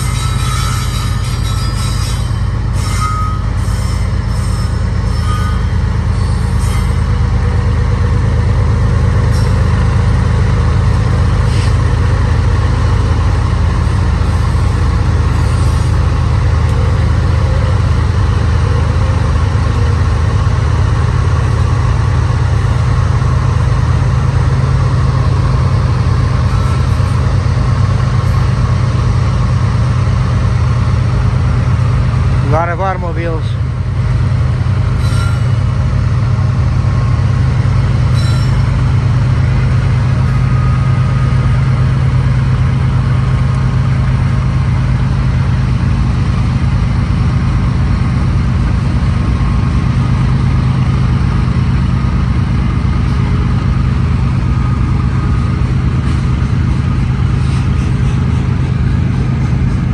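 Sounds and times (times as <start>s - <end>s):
high-pitched wheel squeals: 0.0s - 7.9s, 9.3s - 10.0s, 13.8s - 21.7s, 25.9s - 29.6s, 34.9s - 42.1s
diesel locomotives droning: 0.0s - 59.9s.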